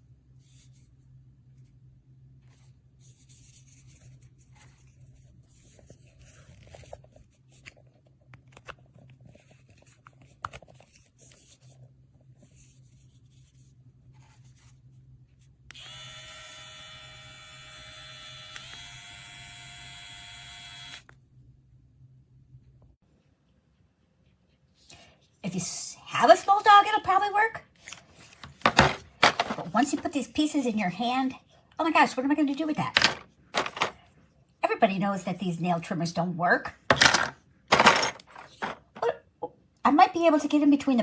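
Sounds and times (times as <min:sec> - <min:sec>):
pet trimmer motor humming: 0:15.7 - 0:21.0
plastic parts clicking and rattling: 0:28.4 - 0:30.0, 0:32.9 - 0:34.0, 0:36.9 - 0:39.0.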